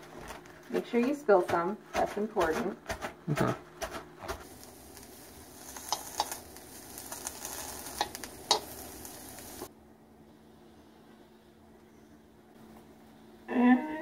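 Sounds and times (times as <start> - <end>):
food sizzling in a wok: 4.2 - 9.7
metal tongs clicking on pan: 5.8 - 6.4, 8.0 - 8.8.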